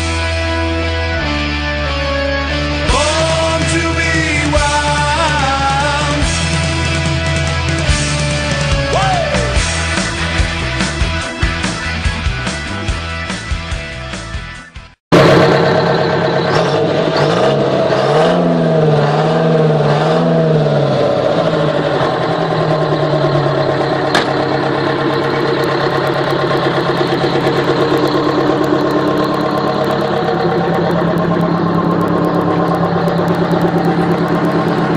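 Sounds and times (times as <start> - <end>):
diesel truck engine revving and idling: 15.1 - 34.9.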